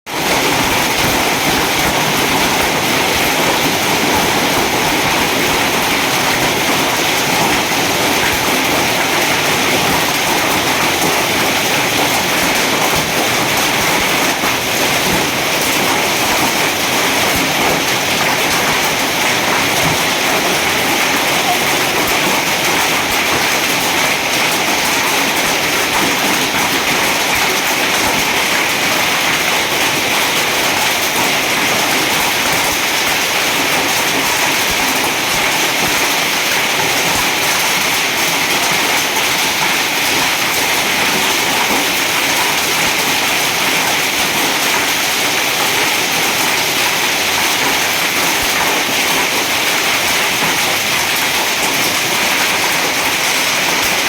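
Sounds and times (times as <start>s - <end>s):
heavy rain pouring: 0.1s - 54.0s.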